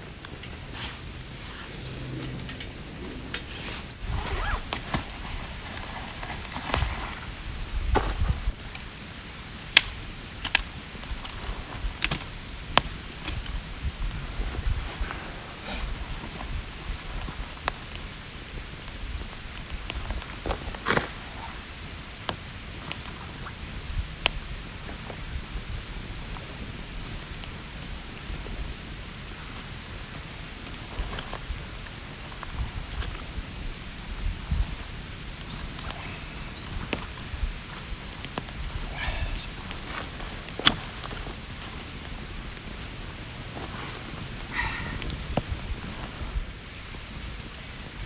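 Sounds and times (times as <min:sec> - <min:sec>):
wood fire crackling: 0:00.0 - 0:48.0
dry wood cracking and snapping: 0:08.0 - 0:15.2, 0:35.3 - 0:46.1.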